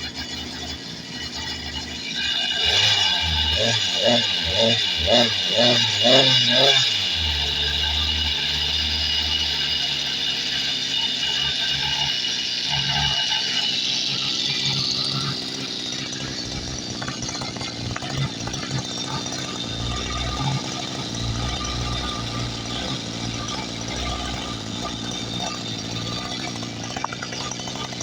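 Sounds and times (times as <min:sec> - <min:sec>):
small two-stroke engine running: 0:00.0 - 0:28.0.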